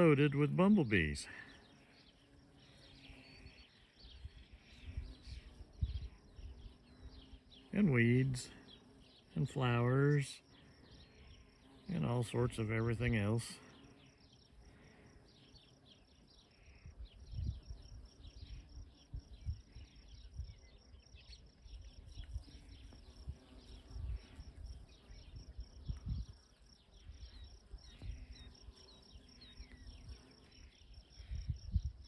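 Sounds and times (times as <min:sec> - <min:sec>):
insect chirping: 0:00.4 - 0:32.0
wind rumbling on microphone: 0:04.0 - 0:07.2, 0:16.8 - 0:20.8, 0:21.6 - 0:28.7, 0:30.8 - 0:32.0.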